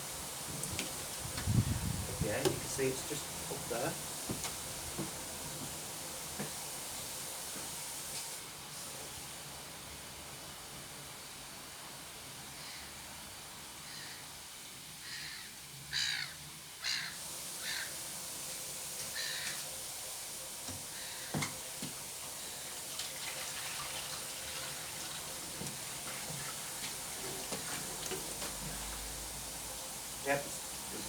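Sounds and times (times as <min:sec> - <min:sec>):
crow cawing: 0:15.0 - 0:18.0, 0:19.2 - 0:19.6
water pouring from a jug: 0:22.7 - 0:29.1.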